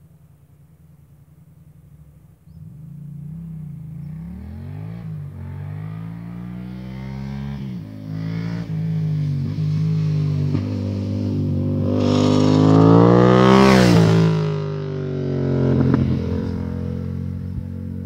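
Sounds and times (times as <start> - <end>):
motorcycle engine revving: 1.8 - 18.0
exhaust crackling: 8.8 - 18.0.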